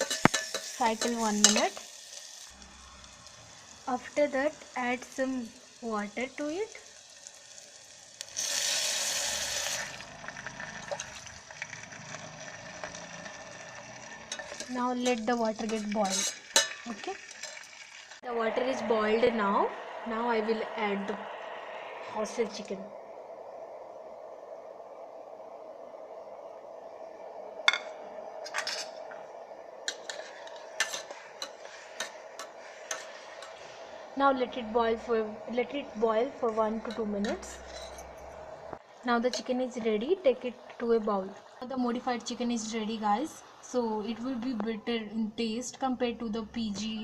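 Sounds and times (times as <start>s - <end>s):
metal spoon clinking on pot: 0.0s - 1.8s, 14.3s - 17.6s
steady hum: 0.0s - 8.4s, 18.2s - 47.0s
water hissing on hot food: 0.0s - 21.2s, 29.8s - 38.1s
sizzle with small crackles: 0.0s - 21.4s, 27.6s - 47.0s.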